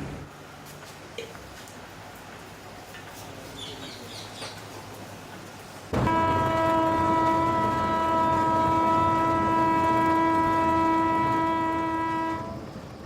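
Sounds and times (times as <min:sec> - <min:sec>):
steam locomotive whistle blast: 0:06.0 - 0:12.6.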